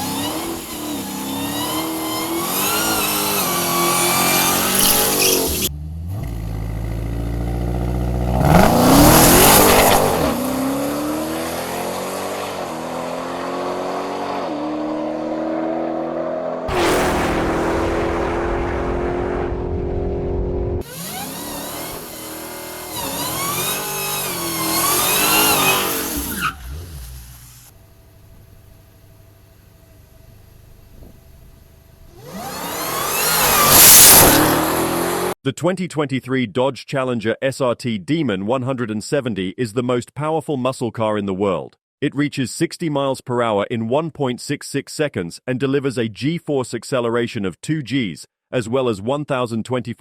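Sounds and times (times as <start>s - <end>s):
car engine revving and accelerating: 0.0s - 27.7s, 32.1s - 35.4s
high wavering squeal: 4.2s - 5.7s.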